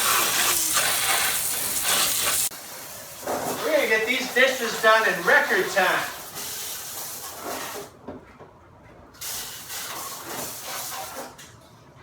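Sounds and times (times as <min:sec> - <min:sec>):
dishwasher spraying water: 0:00.0 - 0:07.8.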